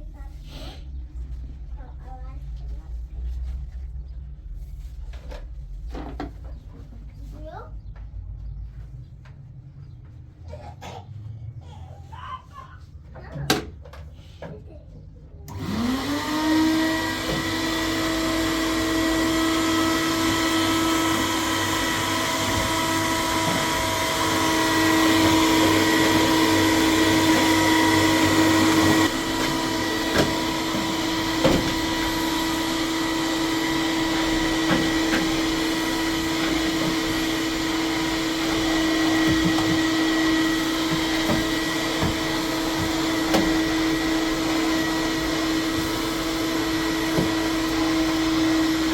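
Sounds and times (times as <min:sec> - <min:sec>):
vacuum cleaner motor whine: 0:15.5 - 0:48.9.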